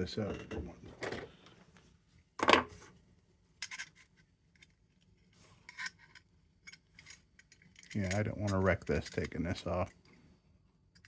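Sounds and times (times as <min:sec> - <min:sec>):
metal parts clinking and scraping: 0:05.6 - 0:10.0.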